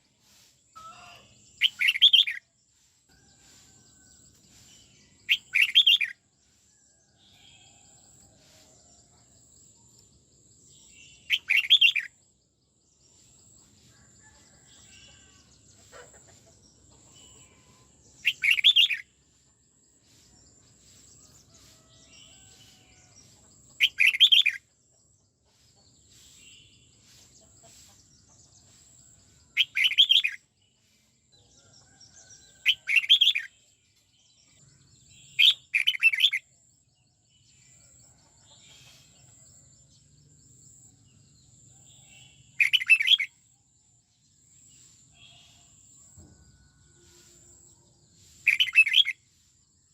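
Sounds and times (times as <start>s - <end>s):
faint bird chirps: 0.0s - 2.4s
bird song phrases: 0.7s - 2.4s, 20.8s - 24.6s, 29.0s - 36.4s, 44.4s - 47.8s.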